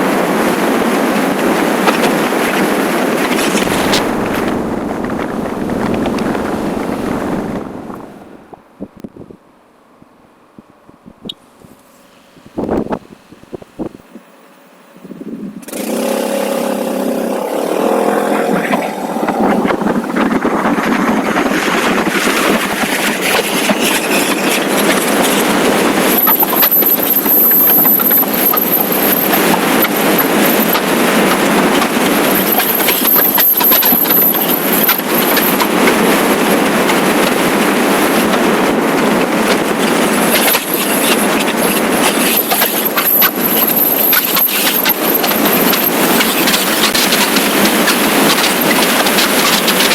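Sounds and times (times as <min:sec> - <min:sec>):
wind noise on microphone: 0:00.0 - 0:14.3, 0:14.9 - 0:16.0, 0:16.8 - 0:49.9
motorcycle engine: 0:02.1 - 0:08.7, 0:15.6 - 0:49.9
faint high whine: 0:03.1 - 0:08.9.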